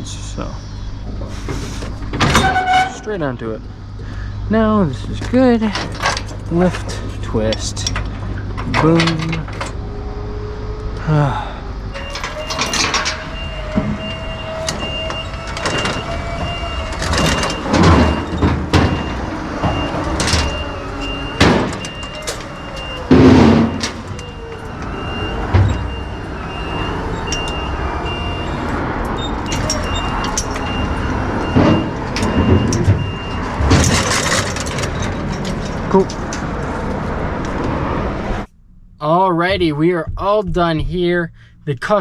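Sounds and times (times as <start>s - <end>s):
metal gear clanking: 11.9s - 36.9s
vehicle engine running: 13.2s - 42.0s.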